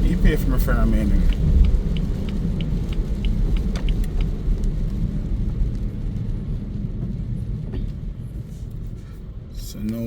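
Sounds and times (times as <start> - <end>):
light regular ticking: 0.0 - 5.2
car cabin rumble: 0.0 - 10.0.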